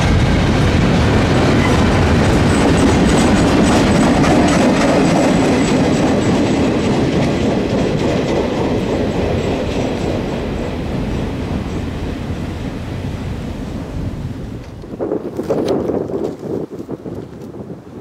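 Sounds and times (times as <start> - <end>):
freight train cars rolling: 0.0 - 17.9
wheels clicking over rail joints: 1.5 - 12.0, 14.4 - 17.6.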